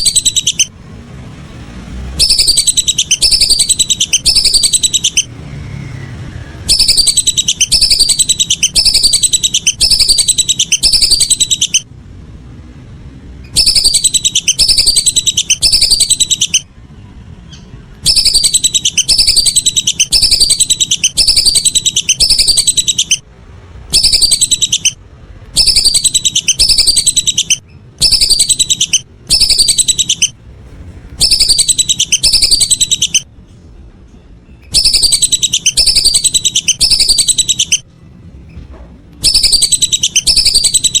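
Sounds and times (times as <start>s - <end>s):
whistling duck calls: 0.0s - 0.7s, 2.2s - 5.3s, 6.6s - 11.9s, 13.5s - 16.7s, 18.0s - 23.2s, 23.9s - 25.0s, 25.6s - 30.3s, 31.2s - 33.3s, 34.6s - 37.8s, 39.2s - 41.0s.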